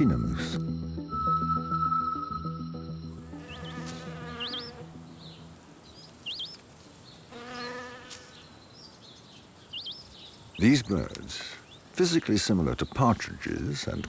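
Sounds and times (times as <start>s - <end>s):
insect buzzing: 3.0s - 10.7s.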